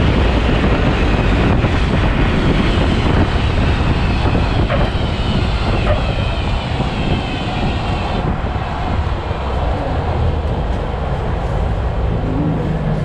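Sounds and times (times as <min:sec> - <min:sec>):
car engines roaring: 0:00.0 - 0:13.0.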